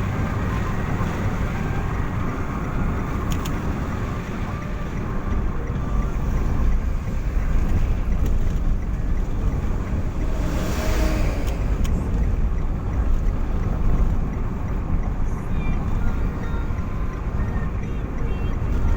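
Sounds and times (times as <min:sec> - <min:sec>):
vehicle passing: 0:00.0 - 0:15.0
vehicle engine and road noise: 0:00.0 - 0:18.9.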